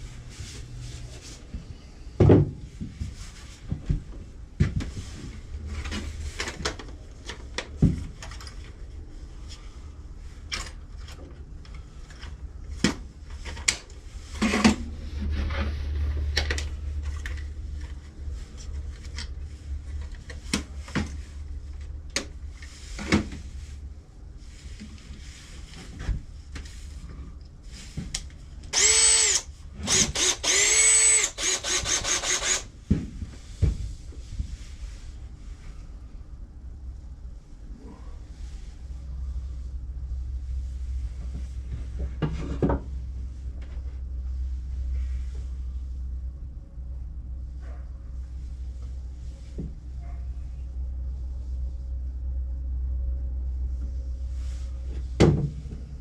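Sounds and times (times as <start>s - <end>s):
low steady hum: 0.0s - 56.0s
power drill whirring: 28.7s - 32.7s.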